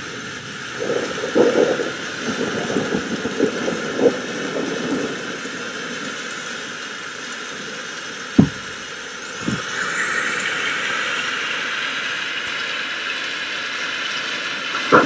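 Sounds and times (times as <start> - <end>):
crackling thunder: 0.0 - 9.8, 14.8 - 15.0
rain hiss: 0.0 - 15.0.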